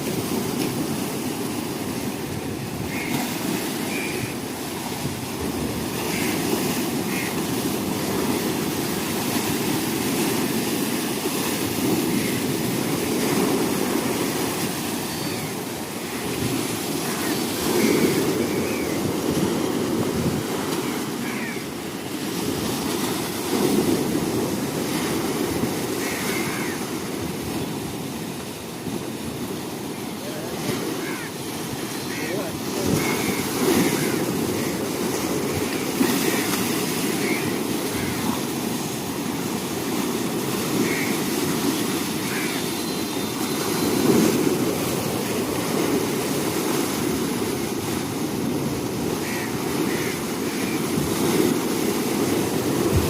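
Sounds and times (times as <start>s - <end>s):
waves surging: 0.0s - 53.0s
low water rumble: 50.0s - 53.0s.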